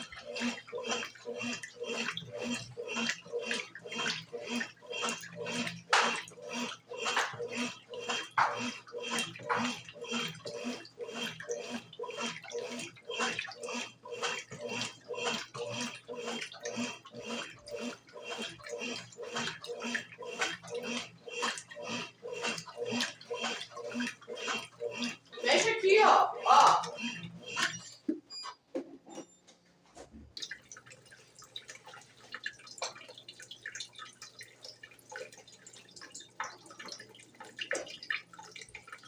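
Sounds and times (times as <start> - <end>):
washing machine sloshing laundry: 0.0 - 39.0.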